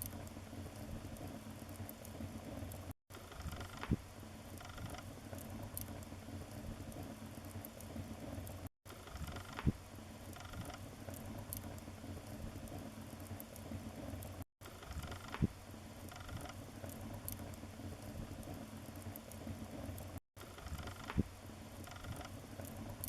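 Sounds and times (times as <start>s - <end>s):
wood fire rumbling: 16.3s - 21.2s.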